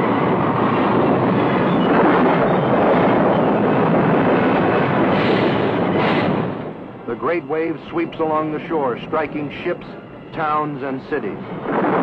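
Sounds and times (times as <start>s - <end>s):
loud rushing noise: 0.0s - 7.1s.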